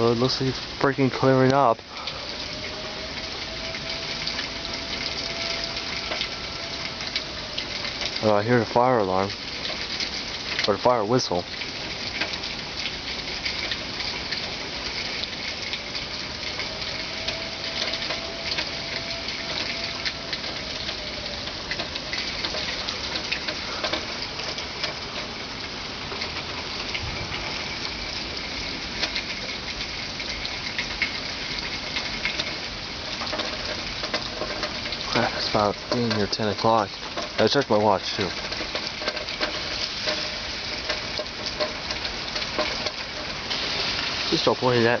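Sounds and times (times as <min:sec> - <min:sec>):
distant siren wailing: 0:00.0 - 0:45.0
steady rain hiss: 0:00.0 - 0:45.0
water dripping: 0:00.0 - 0:45.0.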